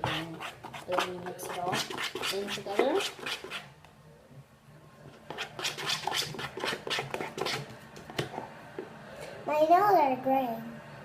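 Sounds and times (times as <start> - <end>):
slime stirred in a bowl: 0.0 - 3.8, 5.2 - 8.4.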